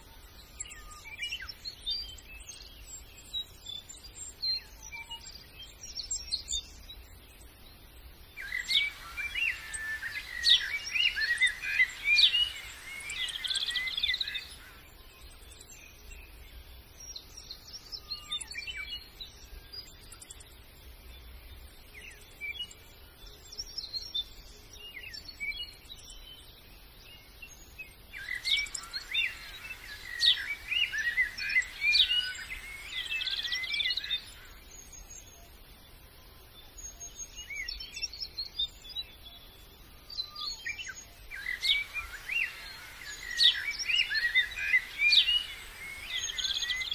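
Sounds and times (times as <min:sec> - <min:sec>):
birds chirping together: 0:00.0 - 0:46.9.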